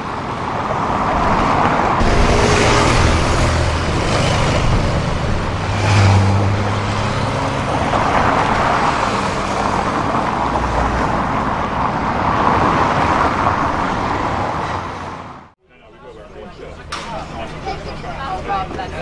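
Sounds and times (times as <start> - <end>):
road traffic: 0.0 - 19.0
low engine note: 2.0 - 8.0.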